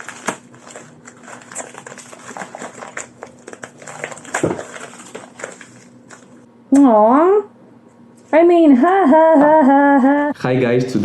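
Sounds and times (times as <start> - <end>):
package rustling and clicking: 0.0 - 6.4
knock on package: 4.3 - 5.2.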